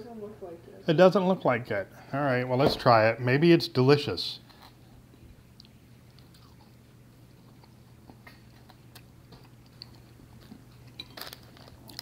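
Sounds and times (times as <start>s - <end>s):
low room hum: 0.0s - 12.0s
person chewing: 4.5s - 12.0s.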